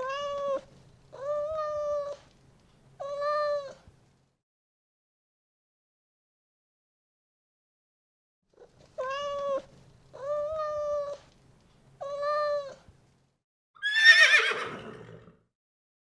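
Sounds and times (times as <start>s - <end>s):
cat meowing: 0.0s - 2.2s, 3.0s - 3.9s, 8.6s - 11.2s, 12.0s - 12.9s
horse whinnying: 13.8s - 15.4s.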